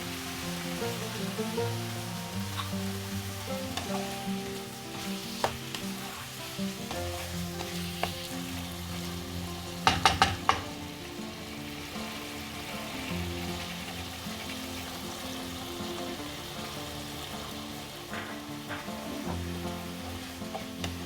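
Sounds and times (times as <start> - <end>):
background music: 0.0 - 21.0
food frying in a pan: 0.0 - 21.0
spoon knocking against a pan: 9.8 - 10.8.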